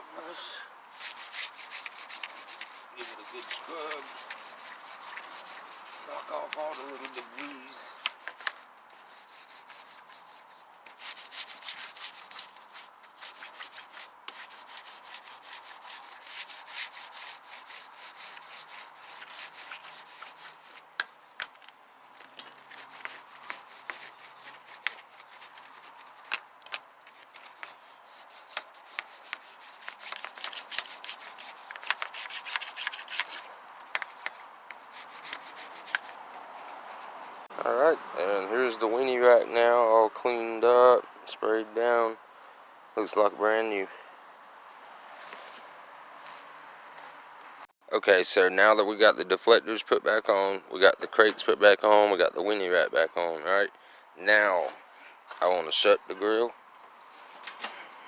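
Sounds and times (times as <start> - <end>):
brush scrubbing wire grill: 0.2 - 21.5, 22.4 - 26.4, 27.0 - 37.5.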